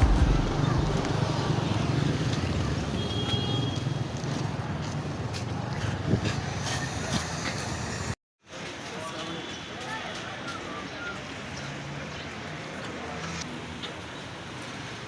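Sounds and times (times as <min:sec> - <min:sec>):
vehicle engines humming: 0:00.0 - 0:08.2
street hubbub: 0:00.0 - 0:15.0.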